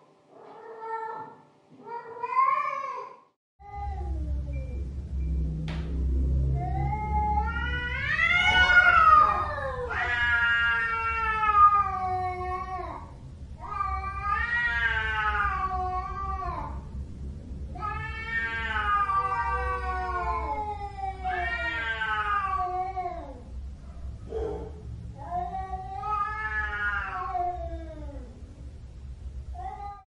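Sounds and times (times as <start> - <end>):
cat yowling: 6.6 - 16.8, 17.8 - 23.5, 24.3 - 28.4, 29.6 - 30.0.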